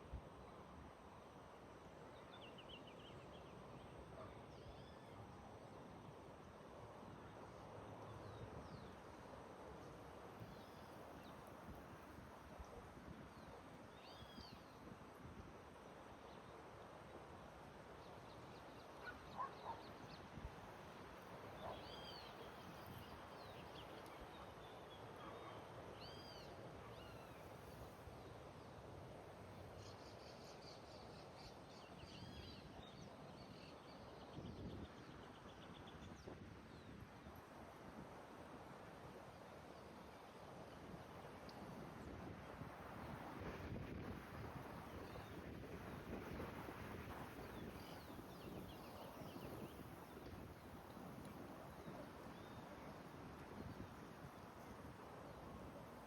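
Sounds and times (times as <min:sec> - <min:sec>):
outdoor background hiss: 0:00.0 - 0:56.0
birds singing faintly: 0:13.3 - 0:14.8, 0:18.0 - 0:20.4, 0:21.4 - 0:28.7, 0:29.8 - 0:37.2, 0:47.2 - 0:56.0.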